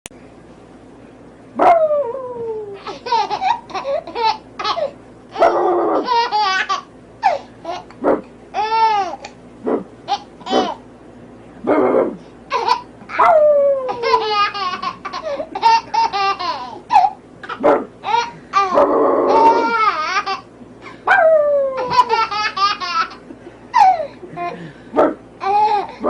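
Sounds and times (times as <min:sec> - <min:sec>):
baby giggling: 0:02.8 - 0:05.0, 0:06.0 - 0:08.0, 0:10.1 - 0:10.8, 0:12.5 - 0:13.2, 0:13.8 - 0:20.5, 0:21.8 - 0:24.7, 0:25.4 - 0:26.0
toy barking: 0:17.5 - 0:20.3.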